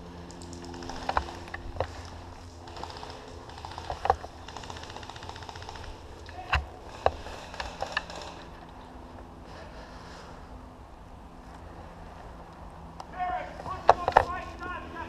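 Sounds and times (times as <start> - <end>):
sharp clicks and knocks: 0.3 - 2.1, 2.7 - 8.8, 13.7 - 14.4.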